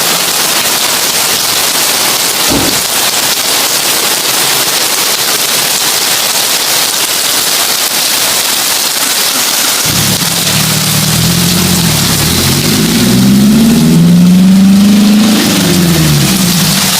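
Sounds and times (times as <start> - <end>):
heavy rain on a tin roof: 0.0 - 16.9
low thud: 2.5 - 3.0.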